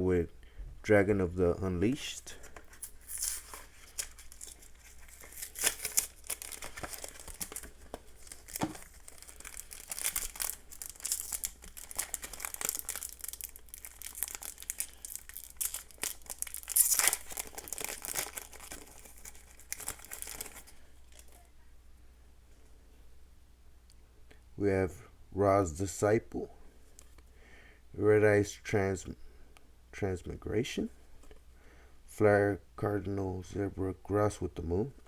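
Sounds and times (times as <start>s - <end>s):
foil wrapper crinkling and tearing: 2.5s - 21.5s.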